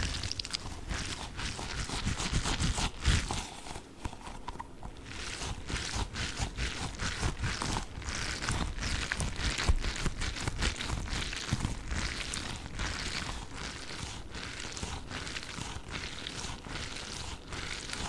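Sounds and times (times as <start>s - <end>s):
hands handling gel beads: 0.0s - 5.8s.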